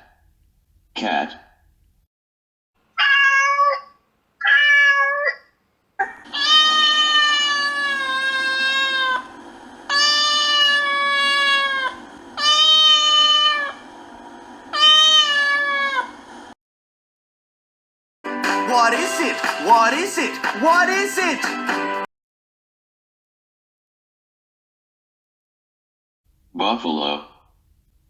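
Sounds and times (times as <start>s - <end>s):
cat meowing: 3.0s - 16.5s
steady background hum: 5.9s - 16.6s.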